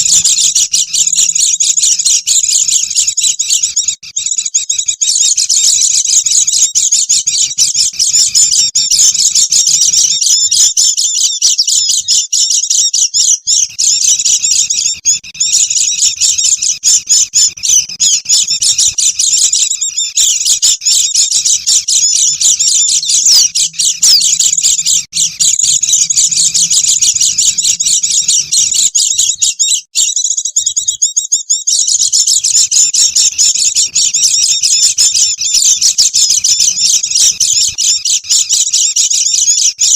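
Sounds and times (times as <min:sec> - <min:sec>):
birds twittering: 0:00.0 - 0:39.9.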